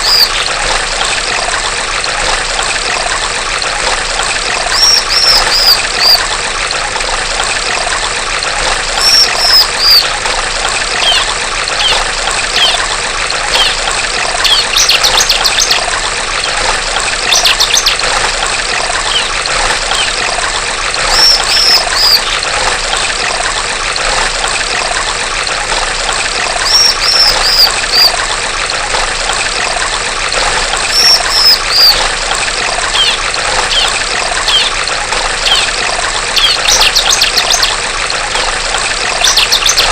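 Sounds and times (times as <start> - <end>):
bird calling high notes: 0.0 - 0.5, 4.7 - 6.2, 9.0 - 10.1, 11.0 - 12.0, 19.1 - 20.2, 21.1 - 22.4, 26.6 - 28.2, 30.9 - 32.0, 32.9 - 34.8
bird rattling trills: 0.0 - 0.6, 4.5 - 6.3, 8.9 - 10.2, 10.9 - 20.3, 21.0 - 22.4, 26.6 - 28.2, 30.7 - 37.8, 39.1 - 39.9
trickling stream: 0.0 - 39.9.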